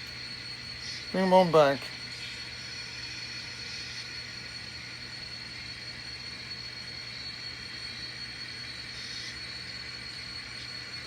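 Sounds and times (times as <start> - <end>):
faint hum: 0.0 - 11.0
thin high tone: 1.1 - 1.9.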